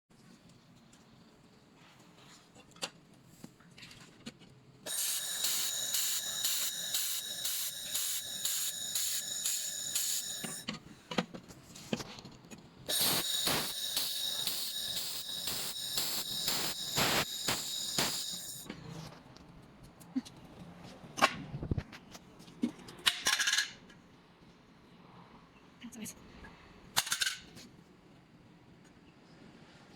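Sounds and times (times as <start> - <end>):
laser welder buzzing hiss: 4.9 - 10.7, 12.9 - 18.7.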